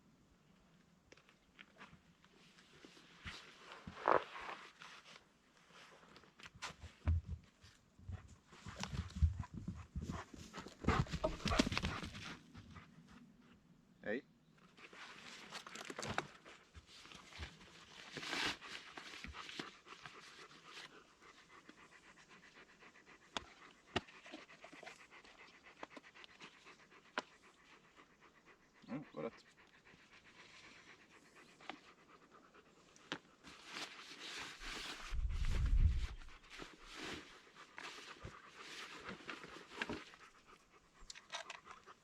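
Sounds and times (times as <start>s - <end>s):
dog panting: 8.1s - 13.5s, 16.4s - 42.0s.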